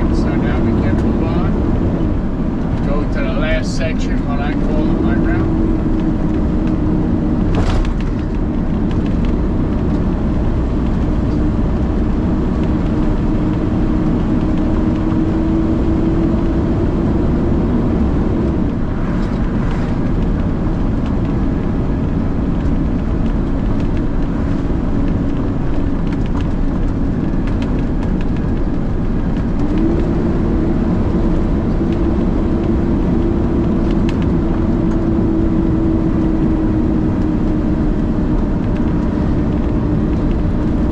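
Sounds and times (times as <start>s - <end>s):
truck engine drone from cab: 0.0s - 40.9s.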